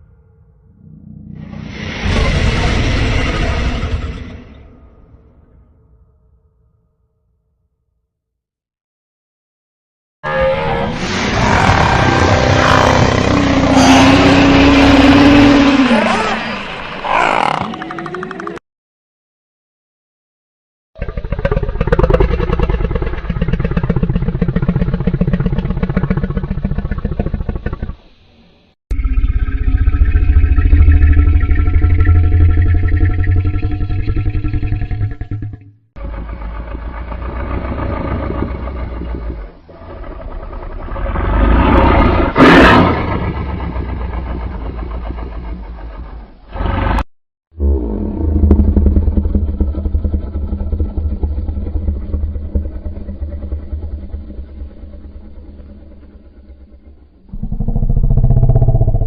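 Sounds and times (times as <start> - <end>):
deep pulsing creature growl: 21.0 - 28.1, 28.9 - 59.0.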